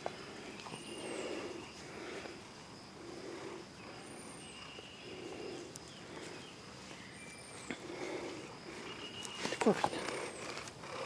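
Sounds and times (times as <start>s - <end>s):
thin insect-like tone: 0.0s - 11.0s.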